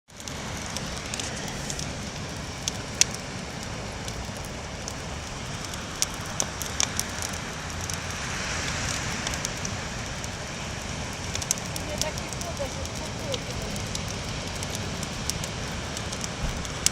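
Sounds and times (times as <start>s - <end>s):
campfire crackling and popping: 0.1s - 16.9s
steady rushing noise: 0.1s - 16.9s.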